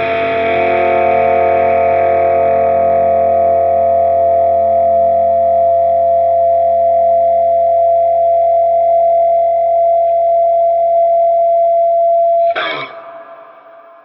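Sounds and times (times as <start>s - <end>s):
overdriven electric guitar chord: 0.0s - 4.8s
scratchy muted strings: 12.4s - 14.0s.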